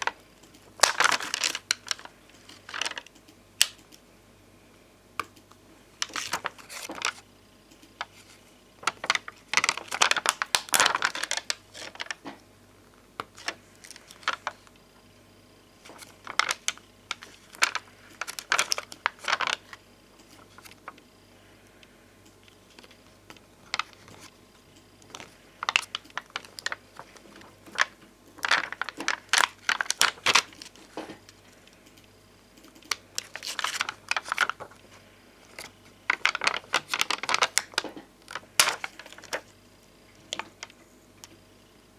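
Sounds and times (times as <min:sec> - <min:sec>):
plastic sticker sheets crinkling: 0:00.0 - 0:03.8, 0:06.0 - 0:07.2, 0:07.9 - 0:12.4, 0:13.2 - 0:14.8, 0:15.8 - 0:21.0, 0:22.7 - 0:24.4, 0:25.0 - 0:31.6, 0:32.7 - 0:39.5, 0:40.2 - 0:40.8.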